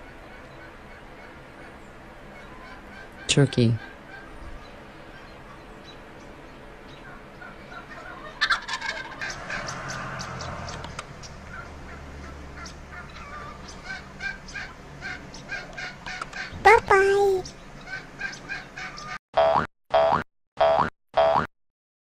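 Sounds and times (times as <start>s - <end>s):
turkeys gobbling: 7.1s - 9.8s.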